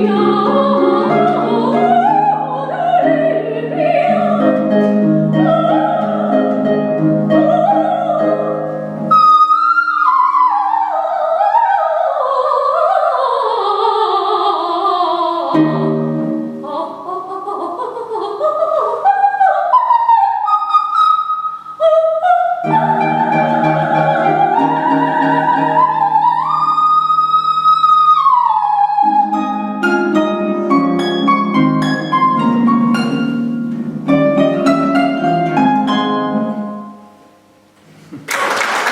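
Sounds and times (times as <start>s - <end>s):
harp playing: 0.0s - 10.4s, 22.6s - 37.3s
soprano singing: 0.0s - 37.4s.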